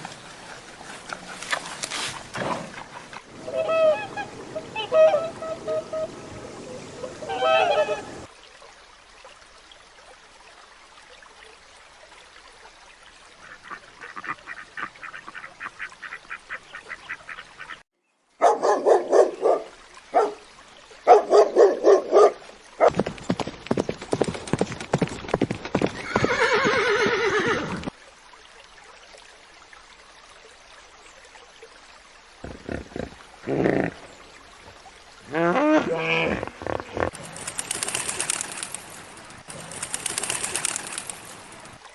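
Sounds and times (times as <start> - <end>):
horse neighing and whinnying: 26.0 - 27.9, 35.3 - 37.2.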